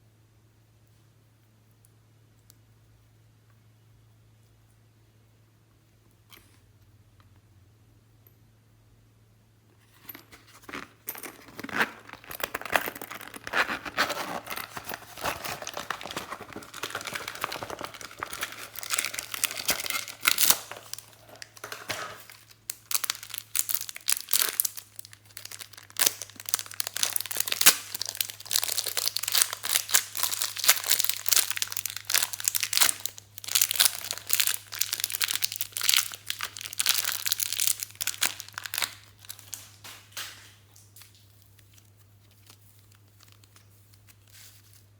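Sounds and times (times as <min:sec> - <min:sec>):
slime crackling and popping: 0:15.6 - 0:21.0, 0:22.6 - 0:41.9.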